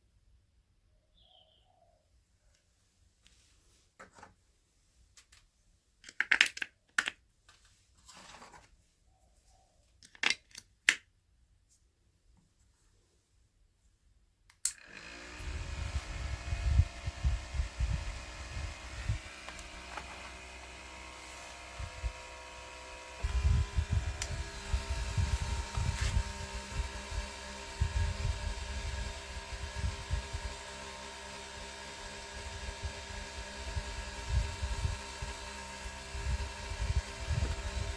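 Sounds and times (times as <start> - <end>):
small electric motor whining: 14.7 - 37.9.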